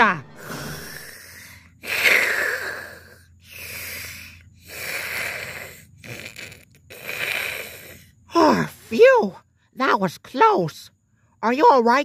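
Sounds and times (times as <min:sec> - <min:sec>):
heavy breathing: 0:00.3 - 0:06.0.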